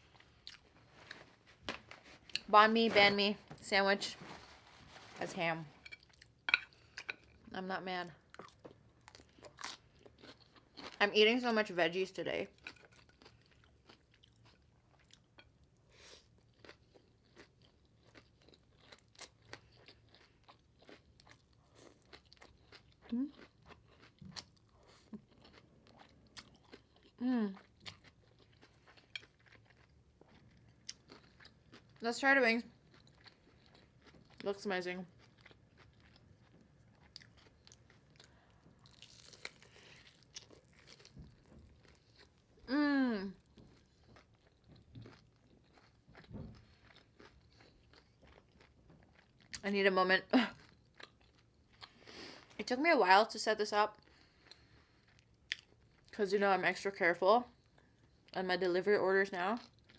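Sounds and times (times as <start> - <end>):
chewing sandwich with crunches: 8.3 - 11.0, 12.6 - 32.0, 32.7 - 34.4, 35.1 - 42.6, 43.3 - 49.6, 50.6 - 52.6, 54.0 - 56.2, 59.6 - 59.9.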